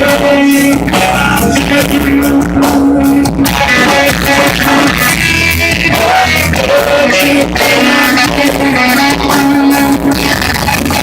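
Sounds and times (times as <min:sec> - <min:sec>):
rock music with electric guitar: 0:00.0 - 0:11.0
sung melody line: 0:00.0 - 0:11.0.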